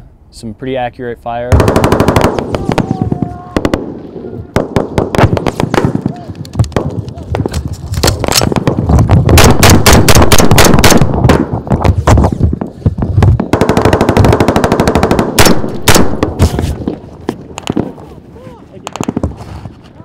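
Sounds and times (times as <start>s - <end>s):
automatic gunfire: 1.5s - 3.0s, 8.0s - 11.5s, 13.4s - 16.4s
single gunshots: 4.6s - 6.2s, 8.0s - 11.5s, 15.1s - 17.0s.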